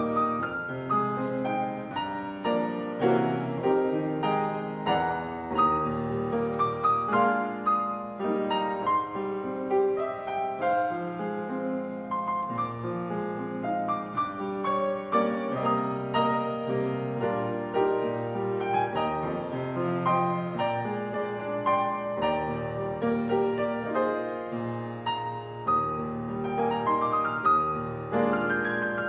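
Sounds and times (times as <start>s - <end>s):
solo piano: 0.0s - 29.0s.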